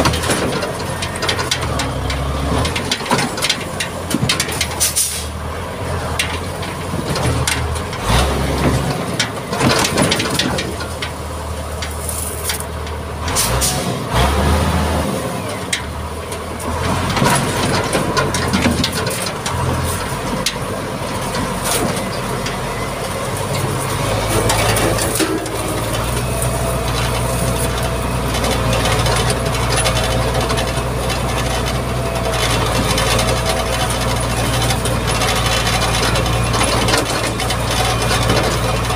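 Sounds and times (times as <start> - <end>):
knocks and rattles: 0.0 - 5.1, 5.8 - 13.0, 15.7 - 38.9
diesel engine running: 0.0 - 38.9.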